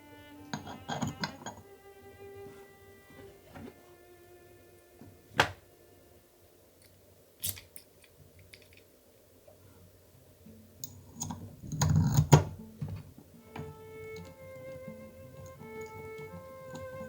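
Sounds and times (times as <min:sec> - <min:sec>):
plastic parts clicking: 0:06.8 - 0:08.9.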